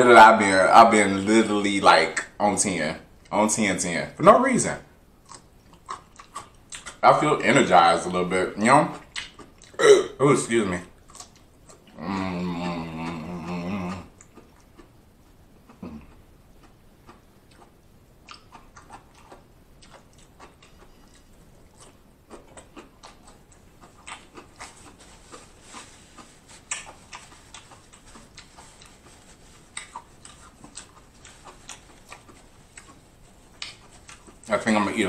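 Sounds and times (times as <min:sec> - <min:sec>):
person chewing food: 0:05.2 - 0:09.8, 0:10.6 - 0:35.0
wet mouth clicks: 0:08.9 - 0:09.8.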